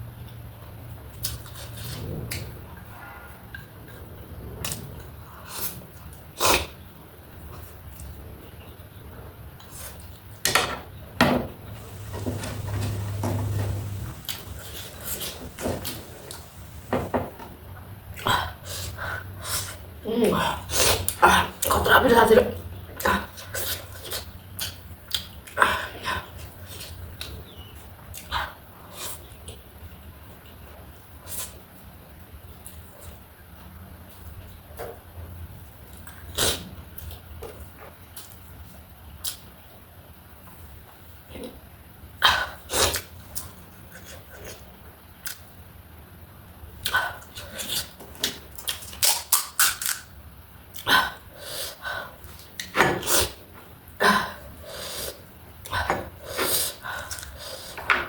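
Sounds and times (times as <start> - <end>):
low hum: 11.6 - 17.8
crunching and slurping: 11.7 - 17.1.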